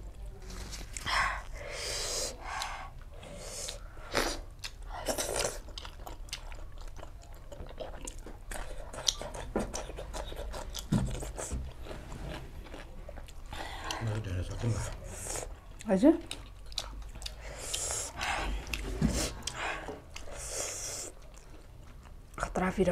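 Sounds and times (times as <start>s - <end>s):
person chewing food: 0.8s - 22.6s
wet mouth clicks: 8.9s - 11.6s.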